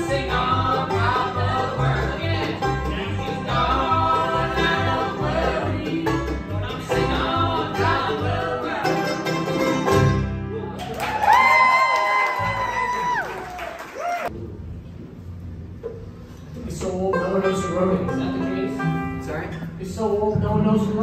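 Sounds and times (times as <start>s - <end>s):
banjo: 0.0s - 10.8s, 16.7s - 21.0s
bass notes: 0.0s - 10.8s, 14.3s - 21.0s
guitar: 0.0s - 13.2s.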